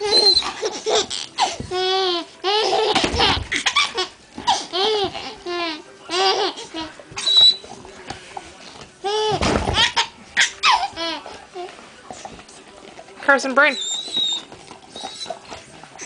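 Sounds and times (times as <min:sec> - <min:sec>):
baby laughing: 0:00.0 - 0:06.9, 0:09.0 - 0:11.2.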